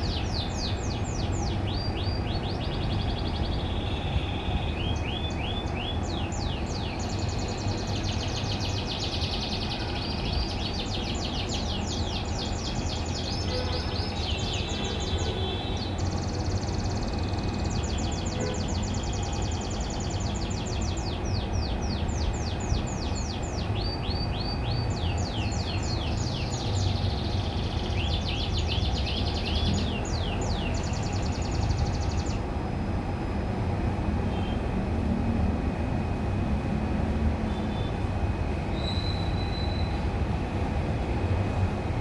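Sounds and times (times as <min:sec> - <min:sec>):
canary singing fast trills: 0:00.0 - 0:32.4.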